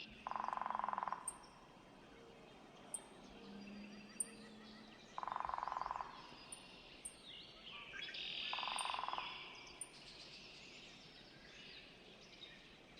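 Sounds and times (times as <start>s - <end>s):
small birds calling: 0.0s - 12.7s
woodpecker drumming on wood: 0.2s - 1.5s, 5.2s - 6.2s.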